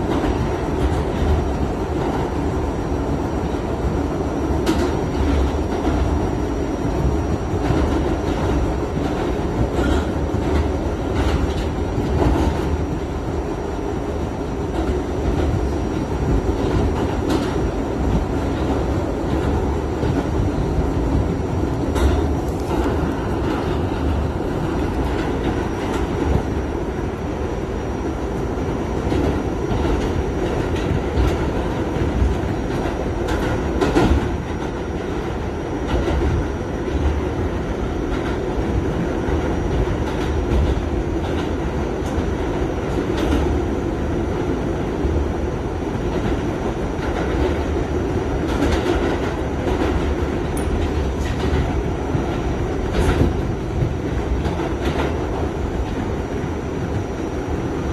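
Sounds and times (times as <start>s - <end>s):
subway train rumbling on rails: 0.0s - 57.9s
wheels clicking over rail joints: 7.6s - 13.0s.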